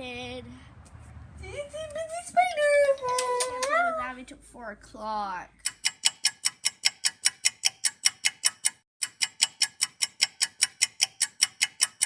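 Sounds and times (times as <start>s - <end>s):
clock ticking rapidly: 5.6s - 12.0s.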